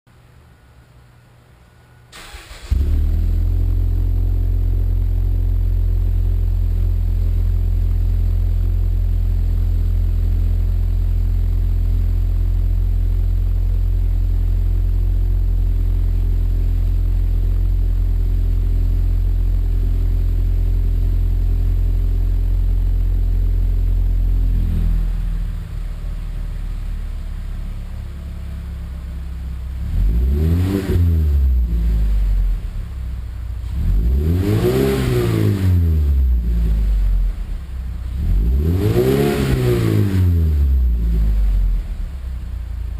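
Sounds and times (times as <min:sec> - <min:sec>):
car engine droning and revving: 0:02.3 - 0:42.9.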